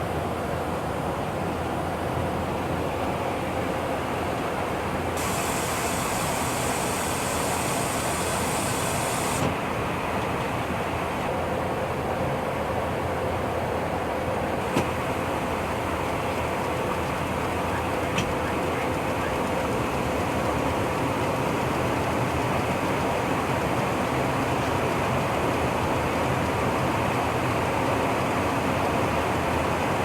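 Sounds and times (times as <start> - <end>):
high hiss: 5.2 - 9.5.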